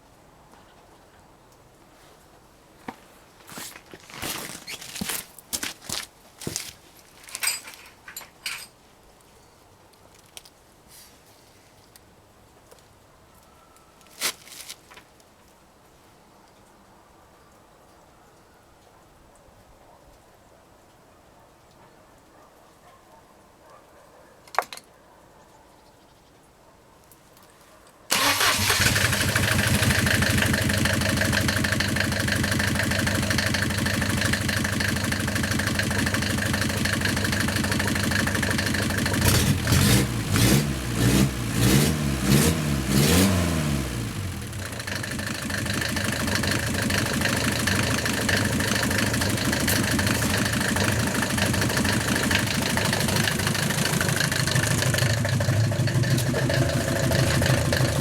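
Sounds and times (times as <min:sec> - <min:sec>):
diesel engine revving: 0:28.1 - 0:58.0
diesel engine starting and idling: 0:28.1 - 0:58.0.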